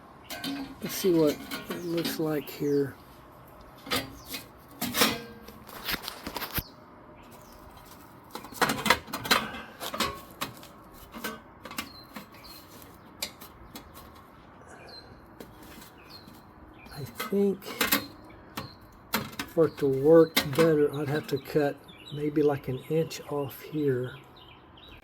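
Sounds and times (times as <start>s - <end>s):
sheet metal tapping and scraping: 0.2s - 2.4s, 3.7s - 6.6s, 7.8s - 14.2s, 15.4s - 21.4s.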